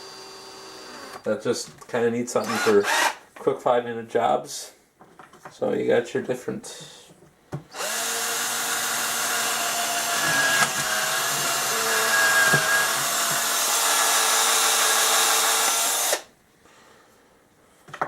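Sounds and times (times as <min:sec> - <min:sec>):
cordless drill motor whining: 0:00.0 - 0:01.2, 0:02.4 - 0:03.2, 0:07.7 - 0:16.3
drill click: 0:02.4 - 0:03.2, 0:07.7 - 0:16.3.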